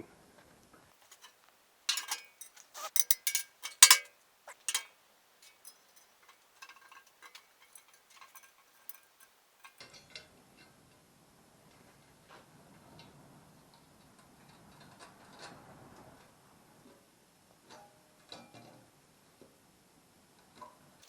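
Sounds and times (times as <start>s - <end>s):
steel pieces clanking: 1.0s - 9.8s.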